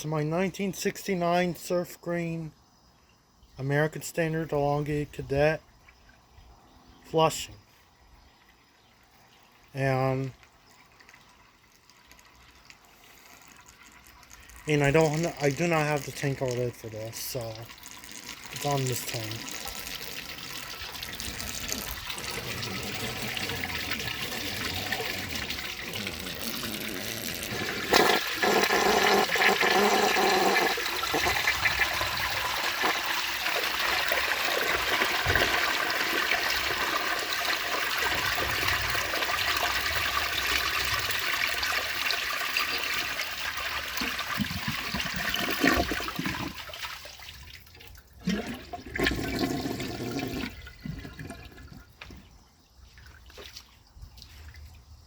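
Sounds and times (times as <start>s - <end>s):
water gurgles: 9.5s - 52.4s
toilet flushing: 13.1s - 47.2s, 48.2s - 51.9s.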